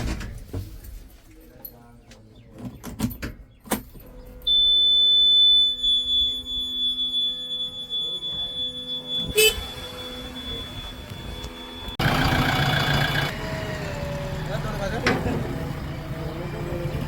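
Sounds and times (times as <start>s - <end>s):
high-pitched electronic buzzer: 4.5s - 12.0s.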